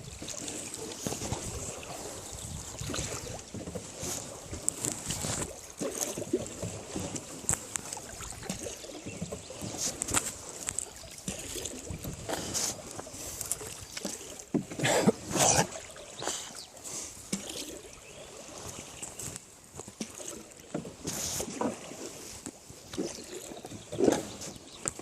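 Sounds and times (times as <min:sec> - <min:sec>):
water splashing and sloshing: 0:00.0 - 0:25.0.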